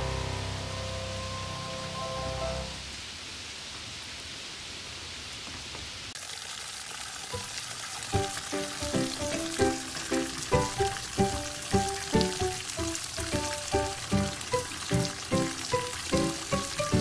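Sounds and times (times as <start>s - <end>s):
plucked-note background music: 0.0s - 2.8s, 8.2s - 17.0s
steady hissing: 8.1s - 17.0s.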